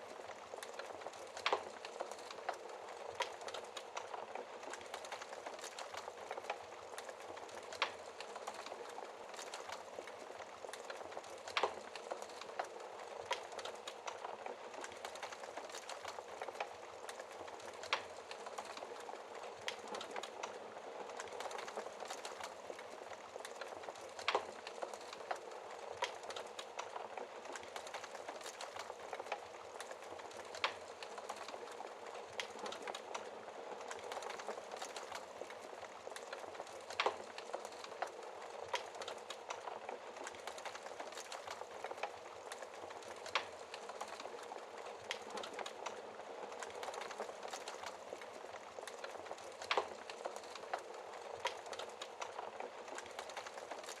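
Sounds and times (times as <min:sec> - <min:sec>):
wood fire crackling: 0:00.0 - 0:54.0
burning logs popping: 0:00.1 - 0:54.0.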